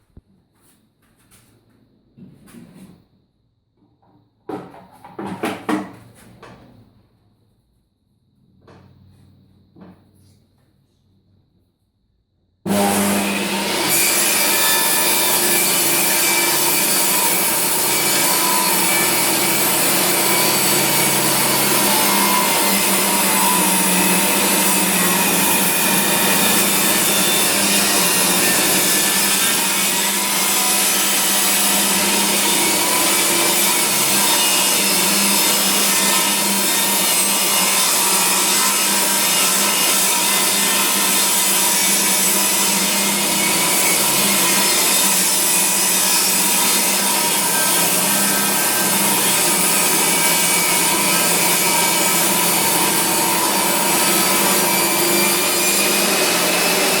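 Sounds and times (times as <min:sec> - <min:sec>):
table saw ripping a board: 0:12.7 - 0:57.0.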